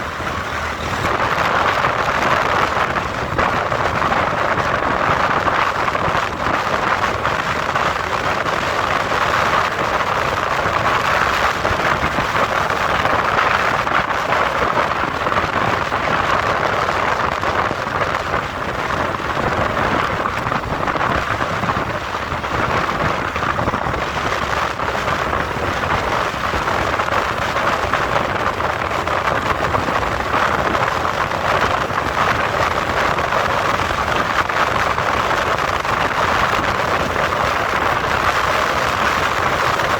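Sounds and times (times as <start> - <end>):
wind and road rushing: 0.0 - 39.9.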